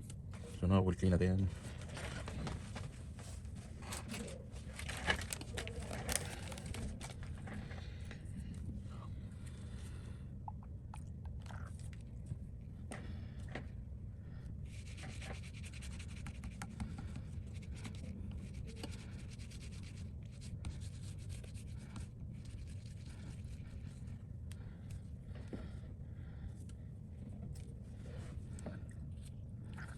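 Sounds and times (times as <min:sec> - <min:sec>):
steady low hum: 0:00.0 - 0:29.9
scraping on a phone screen: 0:14.7 - 0:24.2.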